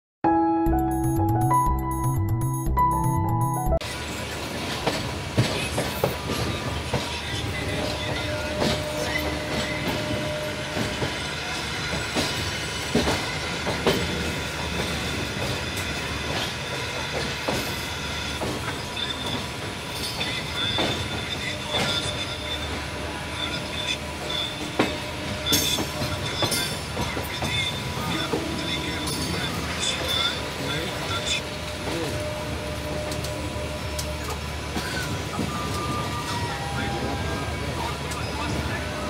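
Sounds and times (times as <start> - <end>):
intro music: 0.2 - 3.8
train rumbling: 3.8 - 39.0.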